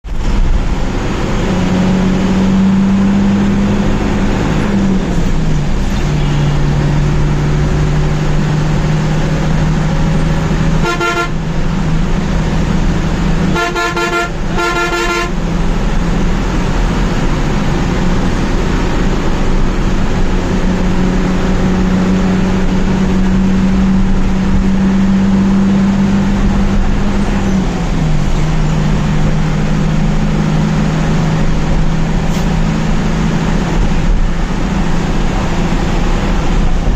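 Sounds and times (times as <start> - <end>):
bus engine droning: 0.0 - 36.9
bus horn: 5.9 - 6.7, 9.8 - 11.8, 12.5 - 15.8.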